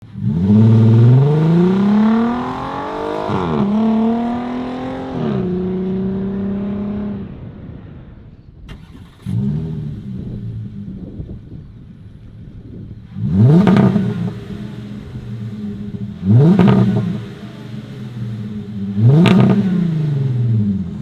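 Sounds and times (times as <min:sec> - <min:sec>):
car engine revving: 0:00.0 - 0:07.3, 0:08.7 - 0:12.2, 0:12.9 - 0:21.0
engine starting up: 0:08.7 - 0:10.3.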